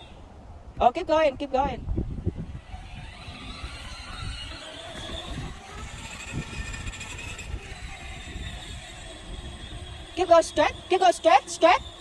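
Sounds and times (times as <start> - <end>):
electric motors whining: 2.1 - 12.0.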